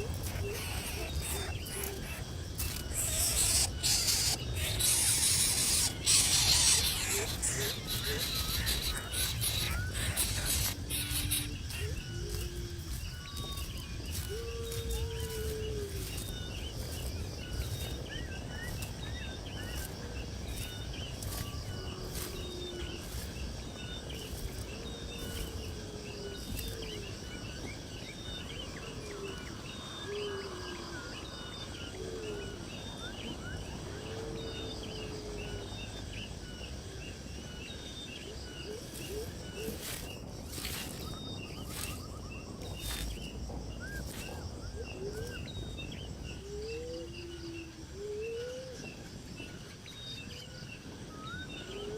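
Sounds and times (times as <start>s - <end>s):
high bird chirps: 0.0s - 17.9s
lower sliding bird calls: 0.0s - 23.5s.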